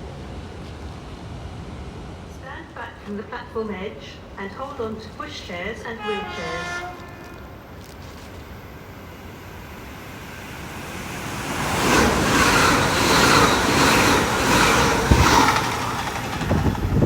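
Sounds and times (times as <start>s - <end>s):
train passing: 0.0s - 17.0s
wheels clattering over rail joints: 11.6s - 17.0s.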